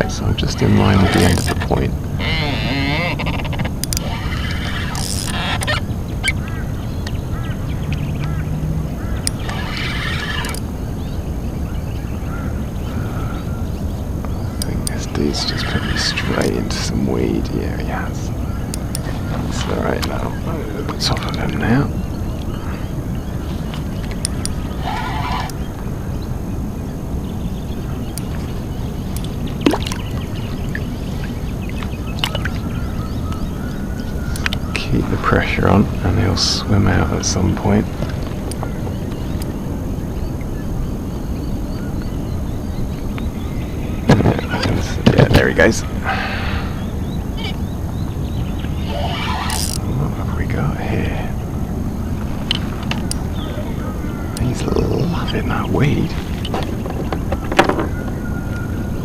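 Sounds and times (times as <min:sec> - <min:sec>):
rasping noise: 0:00.0 - 0:05.8, 0:48.7 - 0:50.1
birds calling: 0:00.0 - 0:59.0
steady low rumble: 0:00.0 - 0:59.0
sharp clicks: 0:02.4 - 0:05.8, 0:09.2 - 0:10.7, 0:18.6 - 0:20.3, 0:23.7 - 0:24.8, 0:34.3 - 0:34.6, 0:38.0 - 0:39.6, 0:49.4 - 0:49.9, 0:52.4 - 0:53.3
water sloshing against kayak hull: 0:27.3 - 0:40.6, 0:55.9 - 0:59.0.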